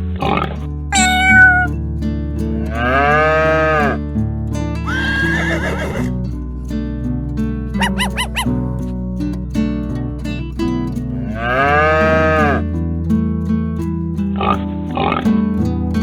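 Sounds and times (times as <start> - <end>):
farm animal calls: 1.0 - 1.7, 4.9 - 6.1, 7.8 - 8.6.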